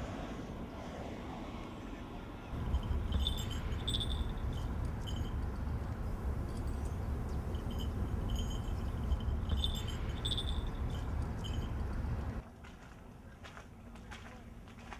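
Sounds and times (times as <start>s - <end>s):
low wind rumble: 0.0s - 12.4s
light metallic jingling: 2.6s - 12.4s.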